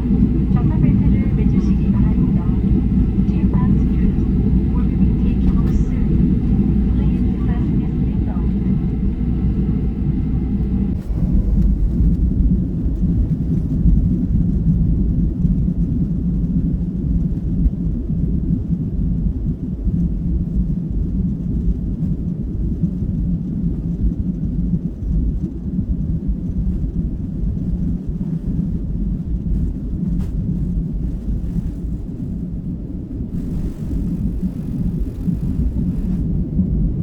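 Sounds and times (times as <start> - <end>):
jet engines rumbling: 0.0 - 14.1, 32.2 - 37.0.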